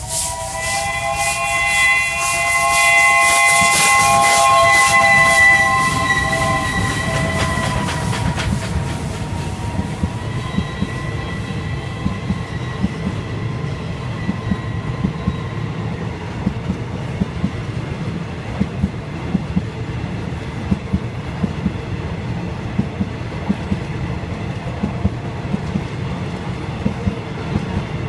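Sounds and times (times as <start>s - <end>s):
train wheels clickety-clack: 0.0s - 28.0s.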